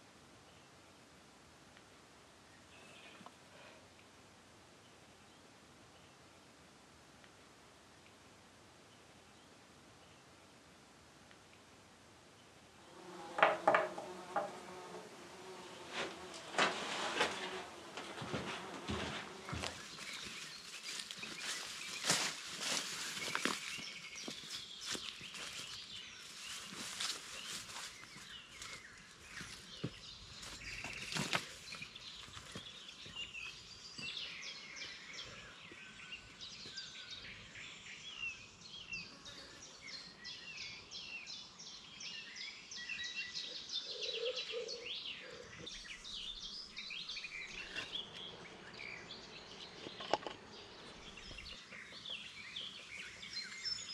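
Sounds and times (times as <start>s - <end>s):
wild birds chirping: 12.3s - 53.9s.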